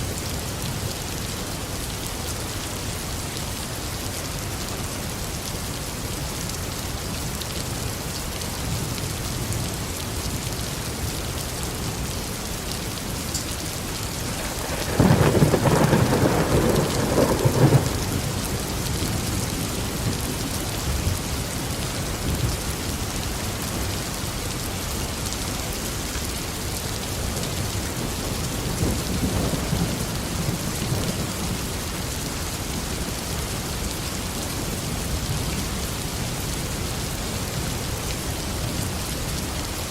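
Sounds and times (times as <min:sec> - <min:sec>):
steady rain: 0:00.0 - 0:39.9
thunder rumbling: 0:14.2 - 0:21.3.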